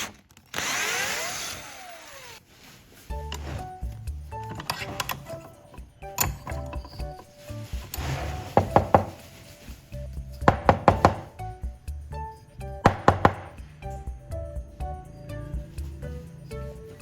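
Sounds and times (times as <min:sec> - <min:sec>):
background music: 0:03.1 - 0:17.0
sharp knocks: 0:08.0 - 0:09.2, 0:10.4 - 0:11.4, 0:12.8 - 0:13.8.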